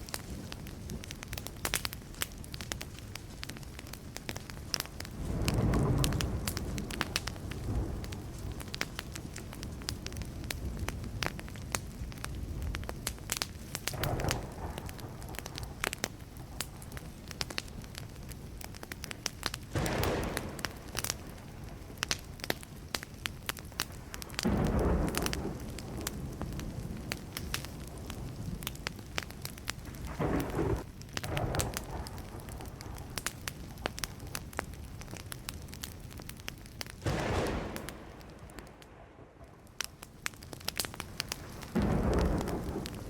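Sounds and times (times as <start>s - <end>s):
wood fire crackling: 0.0s - 43.0s
distant thunder rumbling: 5.1s - 11.6s, 13.9s - 18.0s, 19.7s - 22.8s, 23.9s - 34.9s, 37.0s - 39.8s, 41.0s - 43.0s.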